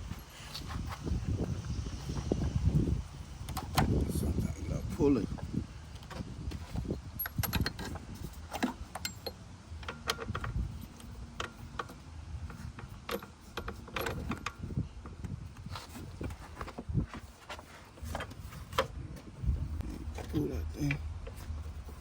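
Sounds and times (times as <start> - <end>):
metallic clicks and knocks: 7.2 - 14.7.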